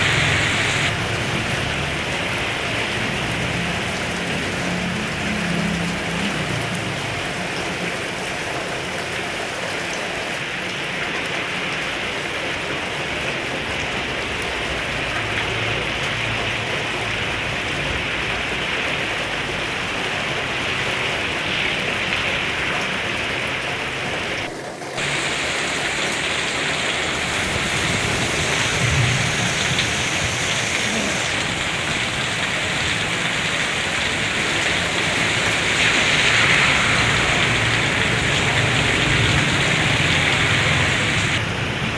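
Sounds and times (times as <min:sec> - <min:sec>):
heavy rain hissing: 0:00.0 - 0:08.8, 0:25.0 - 0:41.9.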